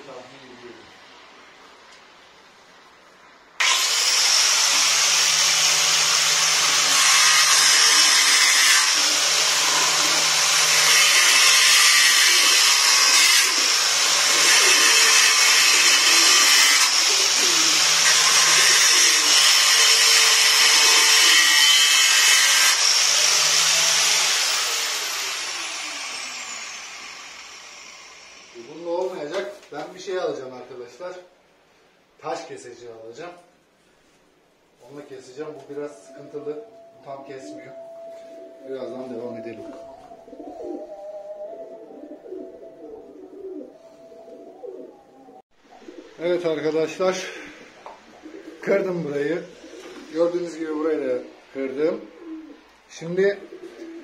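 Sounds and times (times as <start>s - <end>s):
power tool grinding stone: 3.6s - 28.8s.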